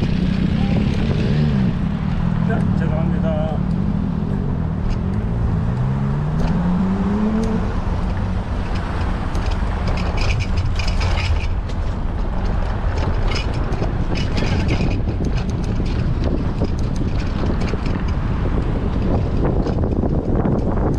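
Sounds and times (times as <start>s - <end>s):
sharp clicks and rattles: 0.0s - 4.0s, 4.7s - 20.9s
wind buffeting microphone: 0.0s - 20.9s
rising tone: 3.6s - 8.3s.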